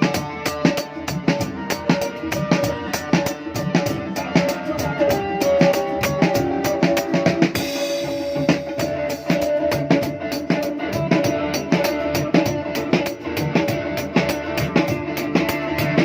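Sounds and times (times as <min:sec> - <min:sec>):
band playing: 0:00.0 - 0:16.0
drum kit beat: 0:00.0 - 0:16.0.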